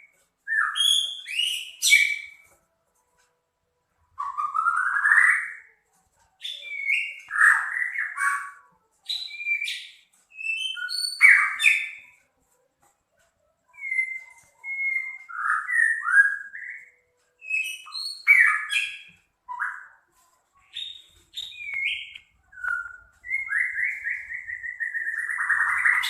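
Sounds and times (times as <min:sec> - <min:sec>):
bird singing harsh phrases: 0:00.0 - 0:02.5, 0:06.4 - 0:12.2, 0:13.7 - 0:20.0, 0:20.6 - 0:26.0.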